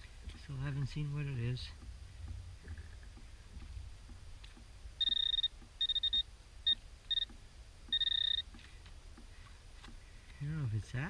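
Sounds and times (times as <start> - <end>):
metal detector beeps: 5.0 - 7.3, 7.9 - 8.5.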